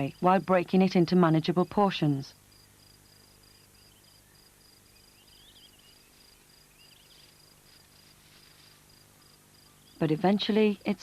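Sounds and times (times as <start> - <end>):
insect pulsing trill: 2.5 - 10.1.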